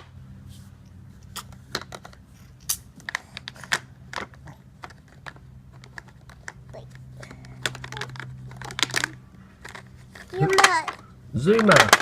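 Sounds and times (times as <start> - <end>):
plastic toys clicking: 3.0 - 12.0.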